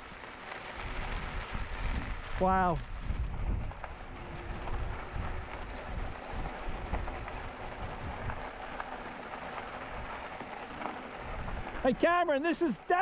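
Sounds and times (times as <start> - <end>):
tyres crackling on trail: 0.0 - 13.0
wind buffeting microphone: 0.8 - 9.0, 11.1 - 12.0.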